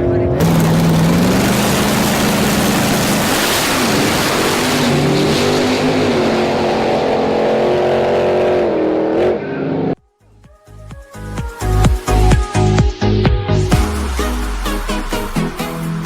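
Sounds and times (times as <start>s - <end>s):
race car engine at full throttle: 0.0s - 10.0s, 13.6s - 16.0s.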